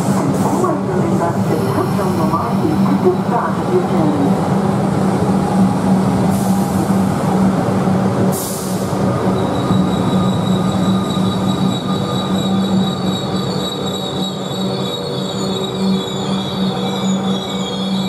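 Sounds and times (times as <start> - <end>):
high wheel squeal: 9.3 - 18.0.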